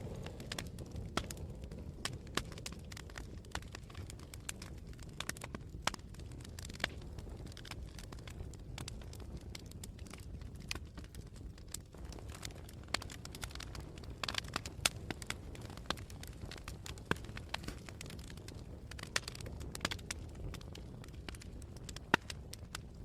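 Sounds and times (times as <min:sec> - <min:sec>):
low steady rumble: 0:00.0 - 0:05.2
campfire crackling: 0:00.0 - 0:23.0
wood snaps and pops: 0:11.8 - 0:22.8.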